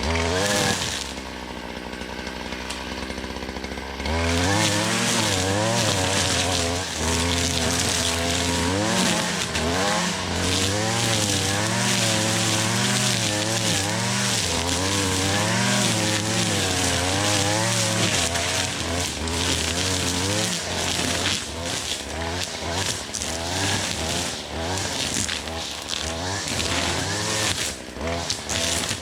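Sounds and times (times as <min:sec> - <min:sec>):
string trimmer engine cutting grass: 0:00.0 - 0:29.0.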